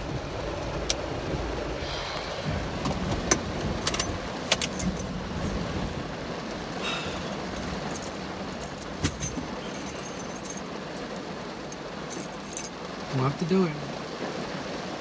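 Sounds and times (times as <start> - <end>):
low rumble: 0.0 - 10.4
keys jingling: 3.4 - 5.1, 6.8 - 12.7
metallic clinks: 3.6 - 5.1, 6.8 - 11.1, 11.7 - 12.7.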